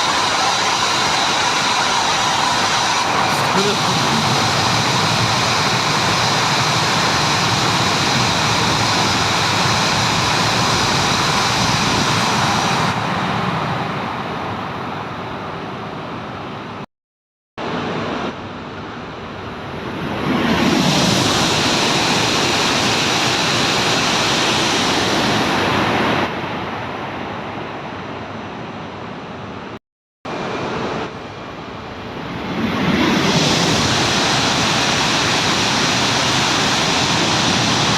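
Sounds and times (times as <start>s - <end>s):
high-speed trains passing: 0.0s - 16.8s, 17.6s - 37.9s.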